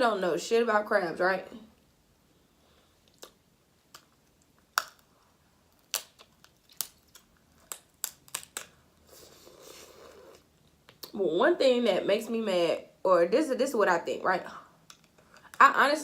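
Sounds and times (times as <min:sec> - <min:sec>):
crab shell cracking and snapping: 0:03.1 - 0:08.8, 0:14.8 - 0:15.5.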